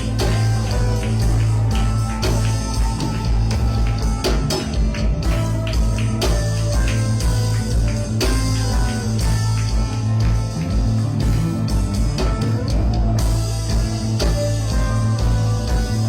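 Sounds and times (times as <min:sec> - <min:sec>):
bass: 0:00.0 - 0:16.0
drum kit: 0:00.0 - 0:16.0
electric guitar: 0:00.0 - 0:16.0.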